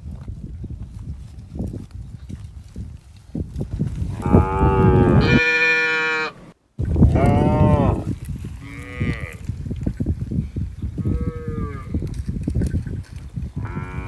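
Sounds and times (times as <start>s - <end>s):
cattle mooing: 4.2s - 6.5s.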